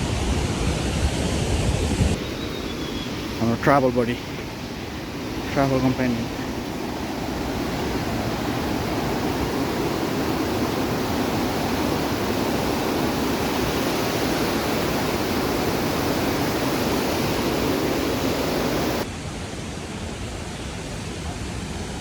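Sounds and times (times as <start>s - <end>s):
fast-flowing water rushing: 2.1s - 19.1s.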